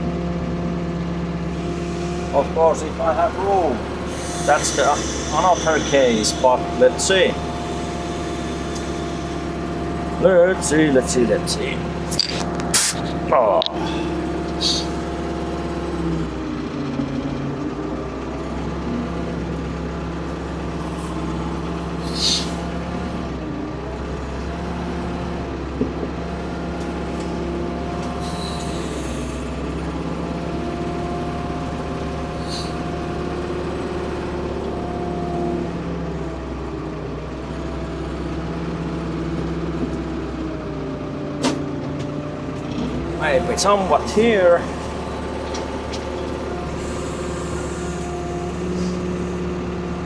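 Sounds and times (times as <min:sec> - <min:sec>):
excavator engine running under load: 0:00.0 - 0:50.0
short high squeals: 0:03.6 - 0:15.2, 0:20.3 - 0:23.4, 0:28.1 - 0:29.6, 0:32.3 - 0:33.1, 0:43.3 - 0:49.1.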